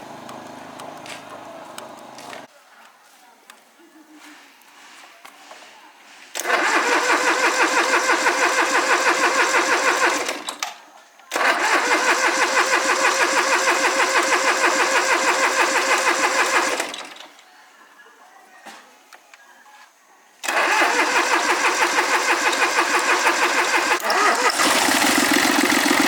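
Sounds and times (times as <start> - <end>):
engine cranking by starter: 0.0 - 2.5, 6.4 - 17.4, 20.4 - 26.0.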